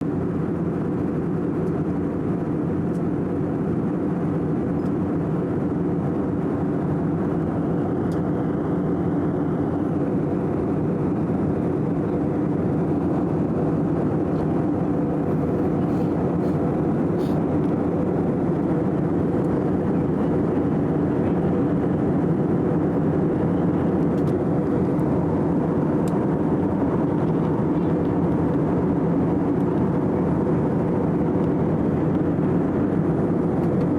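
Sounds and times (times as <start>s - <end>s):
airliner cabin engine drone: 0.0s - 33.9s.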